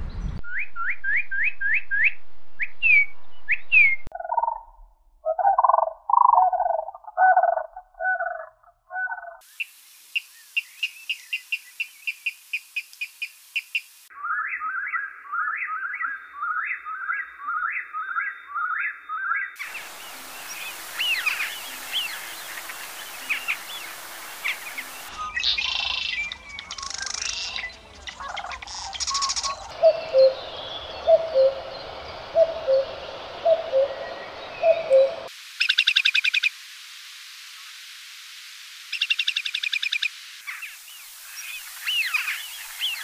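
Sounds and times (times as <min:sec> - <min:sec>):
quick rising bird chirps: 0:00.0 - 0:12.3, 0:19.6 - 0:36.5
low-pitched bird calls: 0:00.5 - 0:09.4, 0:14.2 - 0:36.5
background hiss: 0:09.4 - 0:14.1, 0:19.6 - 0:43.0
fast high twittering: 0:19.6 - 0:36.5.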